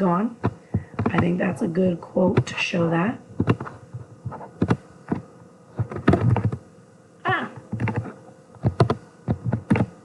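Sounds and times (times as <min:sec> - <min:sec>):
person humming briefly: 0:07.2 - 0:07.6
typing on keyboard: 0:08.6 - 0:09.9.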